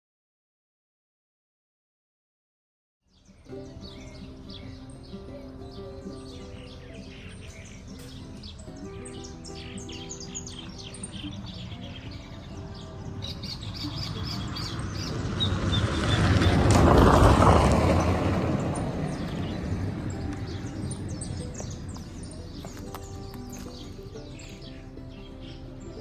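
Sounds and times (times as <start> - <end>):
small birds chirping: 3.1 - 26.0
broad rushing noise: 13.4 - 24.0.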